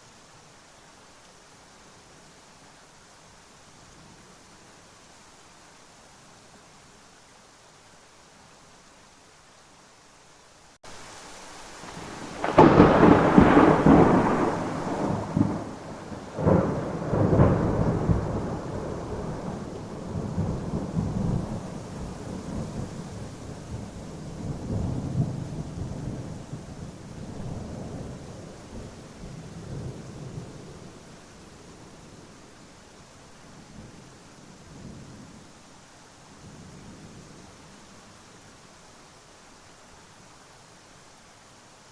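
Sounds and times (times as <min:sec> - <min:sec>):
steady rain: 0:00.0 - 0:41.9
thunder: 0:11.9 - 0:30.8.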